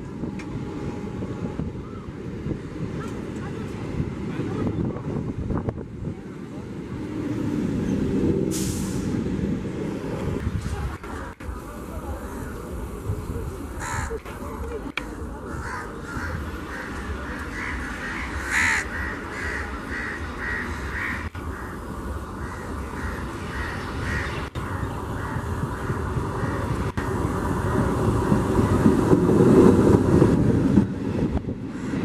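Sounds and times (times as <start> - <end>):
train passing close by: 0.0 - 32.0
crows cawing: 13.8 - 14.2, 15.5 - 21.8, 22.4 - 26.8.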